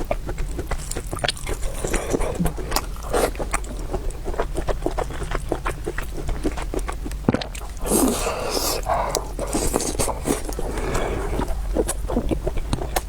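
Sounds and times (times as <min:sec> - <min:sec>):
person chewing with mouth smacks: 0:00.0 - 0:13.0.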